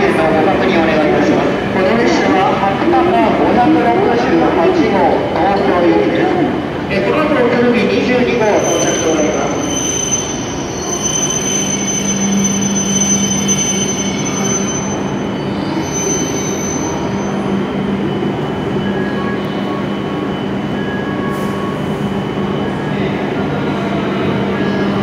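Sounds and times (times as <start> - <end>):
train braking whine: 8.3 - 24.9.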